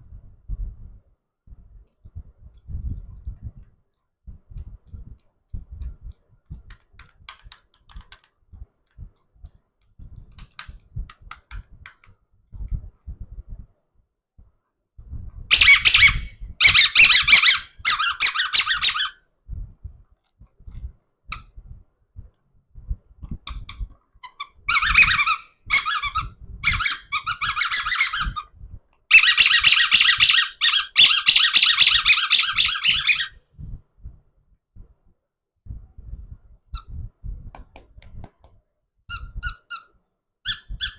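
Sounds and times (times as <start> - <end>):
rubber toy squeaking: 15.5 - 19.2, 23.5 - 28.5, 29.1 - 33.4, 39.1 - 39.9, 40.5 - 40.9.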